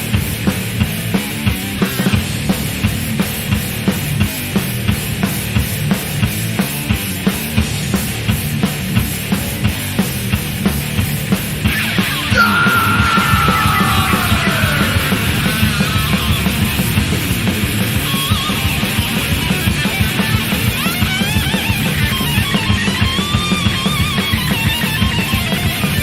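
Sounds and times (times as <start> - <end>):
distorted metal guitars: 12.3 - 20.8
high sliding guitar note: 12.4 - 18.8.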